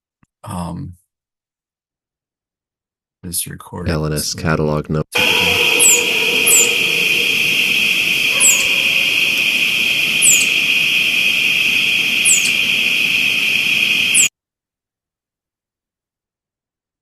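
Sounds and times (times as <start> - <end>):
flying squirrel chirps: 5.2 - 14.3
steady high-pitched drone: 5.2 - 14.3.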